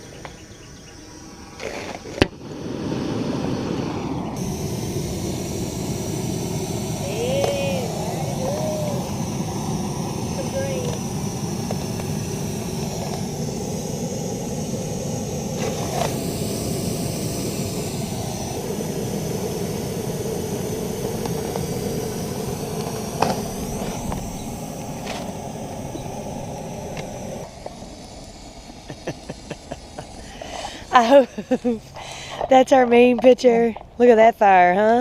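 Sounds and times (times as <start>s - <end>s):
car engine and road noise: 0.0s - 8.4s.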